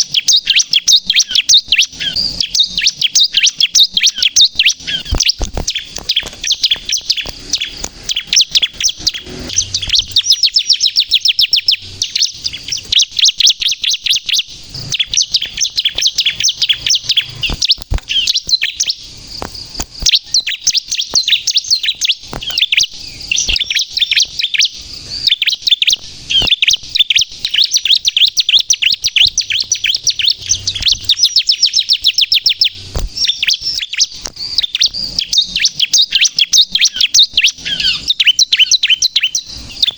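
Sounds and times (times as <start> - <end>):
bird high chattering song: 0.0 - 39.9.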